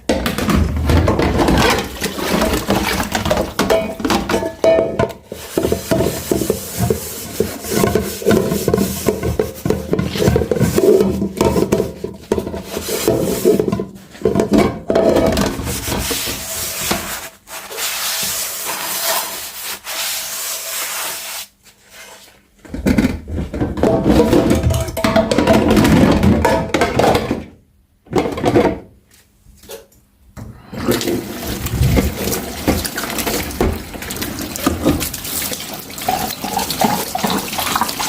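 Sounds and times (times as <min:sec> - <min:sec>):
dishes being scrubbed: 0:00.9 - 0:22.2, 0:30.8 - 0:38.0.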